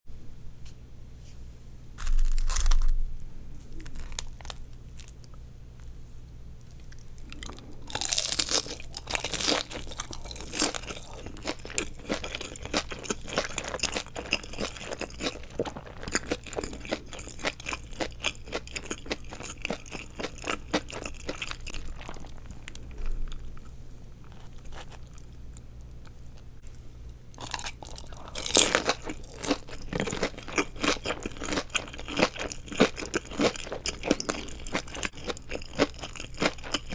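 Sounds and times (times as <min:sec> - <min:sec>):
crisp crunching of chewing: 0:02.0 - 0:03.0, 0:03.7 - 0:06.0, 0:06.6 - 0:36.9.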